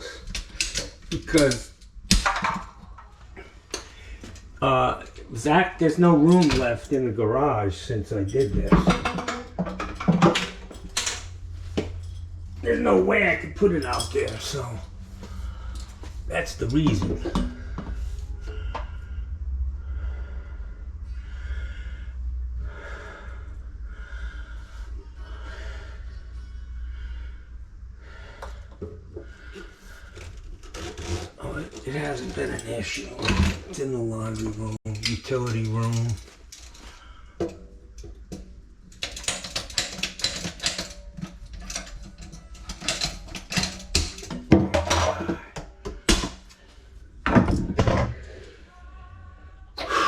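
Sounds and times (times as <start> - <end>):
man breathing heavily: 3.2 - 4.6, 14.9 - 16.3, 17.2 - 30.3, 49.8 - 50.0
steady low rumble: 9.9 - 30.6
mechanical clicking and scraping: 28.4 - 44.5.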